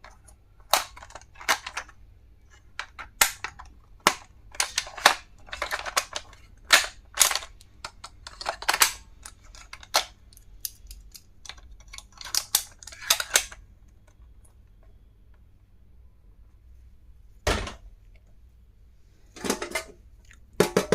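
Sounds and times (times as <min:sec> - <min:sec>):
plastic clicks and snaps: 0:02.8 - 0:15.0.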